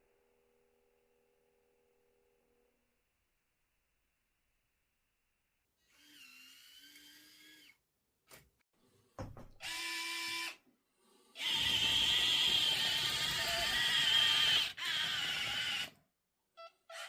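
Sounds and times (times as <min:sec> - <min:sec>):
small electric motors whining: 0:05.8 - 0:07.8, 0:09.6 - 0:10.6, 0:11.3 - 0:16.0.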